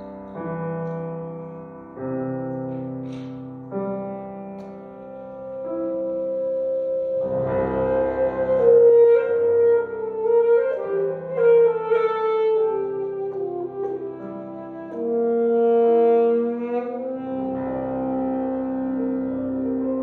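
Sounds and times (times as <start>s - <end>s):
piano accompaniment: 0.0s - 20.0s
alto saxophone melody: 4.0s - 20.0s.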